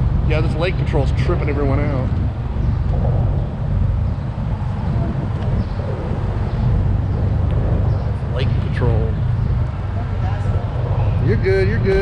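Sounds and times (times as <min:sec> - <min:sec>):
car engines idling: 0:00.0 - 0:12.0
faint voices: 0:04.3 - 0:12.0.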